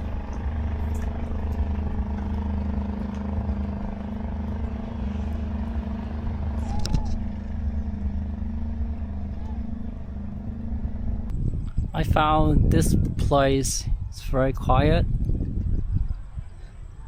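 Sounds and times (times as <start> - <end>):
small motorbike engine running: 0.0 - 11.3.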